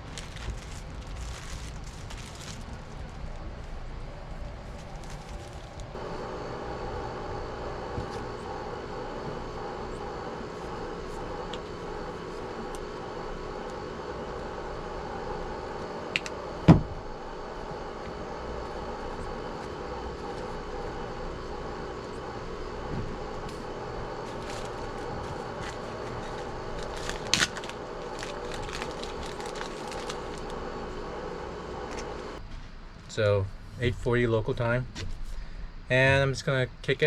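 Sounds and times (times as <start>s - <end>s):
engine-like drone: 5.9s - 32.4s.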